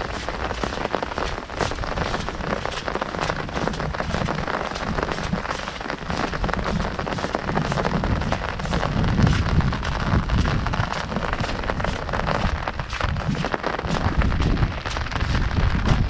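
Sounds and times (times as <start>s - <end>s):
heavy rain on an umbrella: 0.0s - 16.0s.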